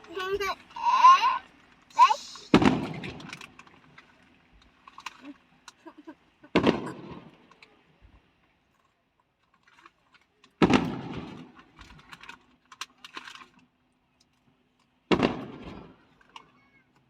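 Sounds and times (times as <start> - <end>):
fireworks booming: 2.0 - 3.3, 6.4 - 7.5, 10.6 - 11.4, 15.1 - 16.0
firework pops and crackles: 2.0 - 3.8, 6.5 - 7.7, 10.6 - 11.8, 15.1 - 16.1.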